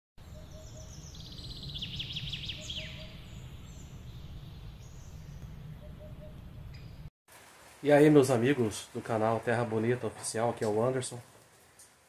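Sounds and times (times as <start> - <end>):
small birds chirping: 0.2 - 7.1
low steady rumble: 3.0 - 7.1.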